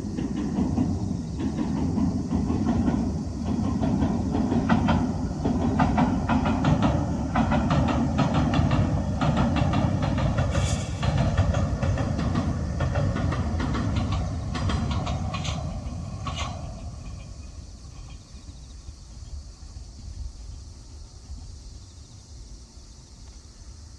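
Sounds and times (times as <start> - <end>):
train rumbling over bridge: 0.0 - 23.9
sharp wheel clacks: 0.2 - 18.2.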